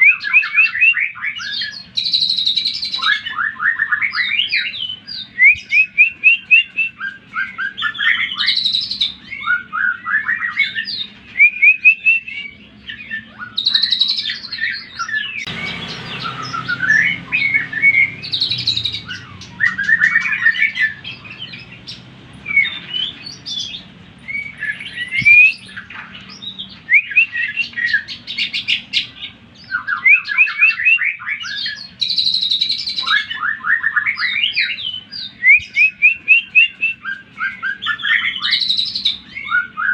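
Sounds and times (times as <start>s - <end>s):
bird singing rapid chirps: 0.0s - 39.9s
rushing noise: 15.5s - 21.8s.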